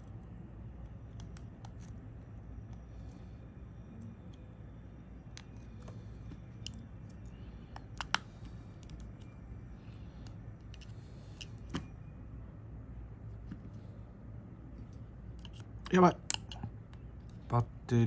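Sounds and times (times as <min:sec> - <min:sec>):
low room hum: 0:00.0 - 0:18.0
hand tools clicking and tapping: 0:07.8 - 0:08.2.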